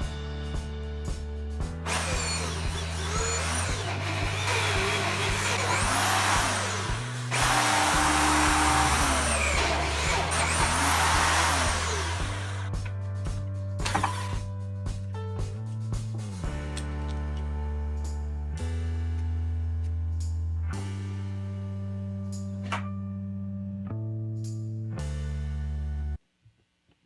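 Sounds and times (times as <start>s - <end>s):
background music: 0.0s - 19.9s
power tool whining: 1.9s - 12.7s.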